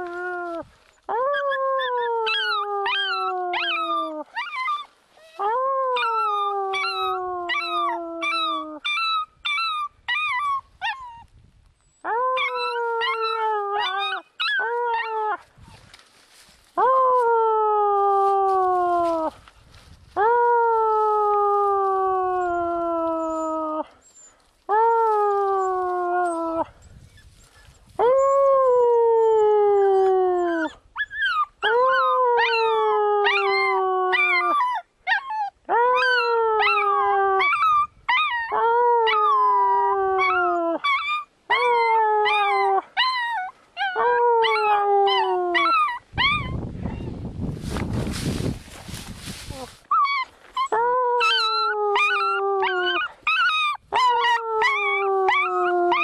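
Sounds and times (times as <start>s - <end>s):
small dog howling: 0.0s - 11.0s, 12.0s - 15.4s, 28.0s - 47.0s, 49.9s - 56.0s.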